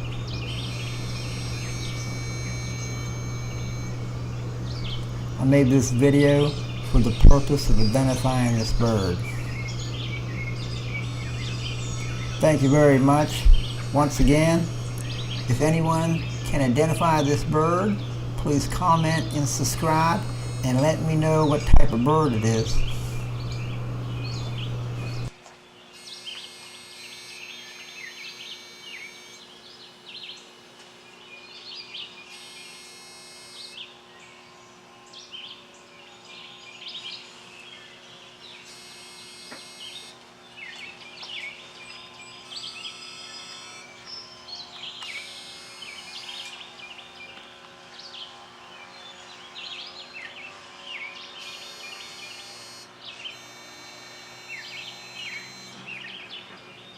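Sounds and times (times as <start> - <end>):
low steady hum: 0.0 - 25.4
songbirds chirping: 0.0 - 56.9.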